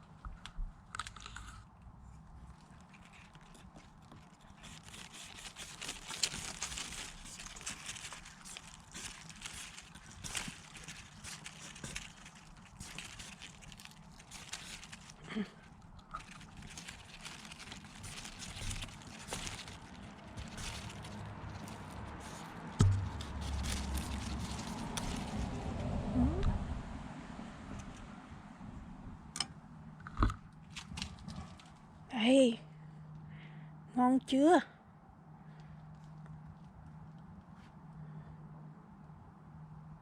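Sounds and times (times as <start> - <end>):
stems clicking and snapping: 2.4 - 25.8
leaves and stems rustling: 2.4 - 26.0.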